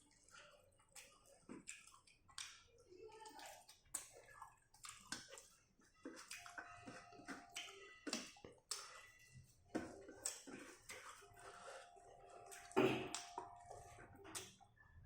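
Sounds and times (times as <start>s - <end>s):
person chewing food: 0.0s - 15.0s
wet mouth clicks and smacks: 1.0s - 2.7s, 3.4s - 6.6s, 7.5s - 9.1s, 10.1s - 11.1s, 12.5s - 14.6s.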